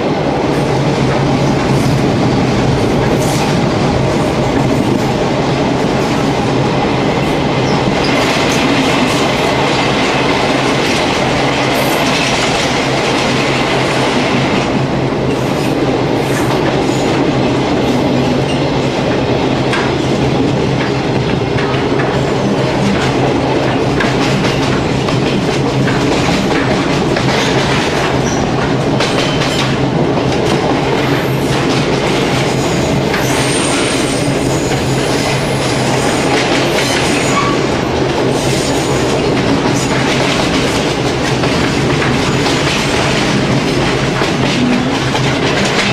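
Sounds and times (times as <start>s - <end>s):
diesel railcar engine drone: 0.0s - 45.9s
wheels clicking over rail joints: 20.8s - 30.9s, 39.2s - 45.9s.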